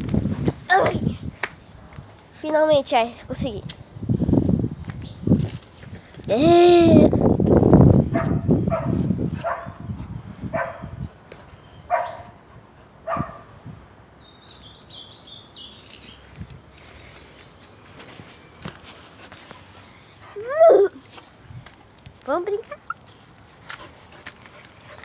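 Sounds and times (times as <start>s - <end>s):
dog barking: 8.2s - 9.8s, 10.5s - 11.0s, 11.9s - 12.4s, 13.1s - 13.5s
faint high bird chirps: 22.6s - 23.0s.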